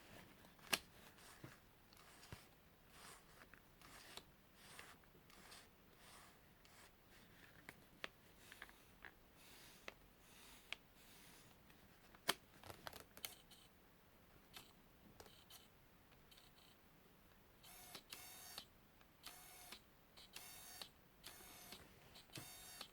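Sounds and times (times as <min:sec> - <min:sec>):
camera lens autofocus whirring: 0:17.6 - 0:22.9.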